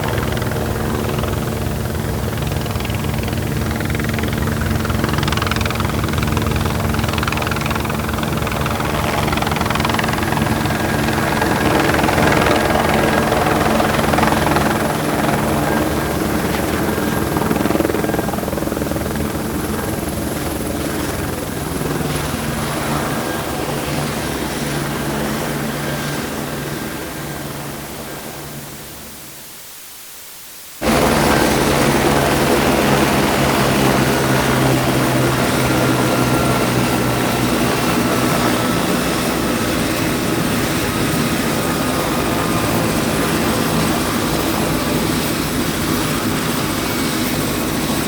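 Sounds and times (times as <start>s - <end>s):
helicopter rotor chop: 0.0s - 28.6s, 30.8s - 48.0s
high turbine whine: 0.0s - 29.2s.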